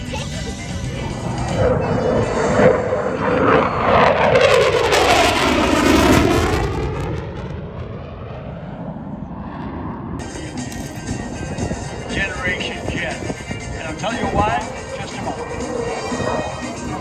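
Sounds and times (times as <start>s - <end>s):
fighter jet passing: 0.0s - 17.0s.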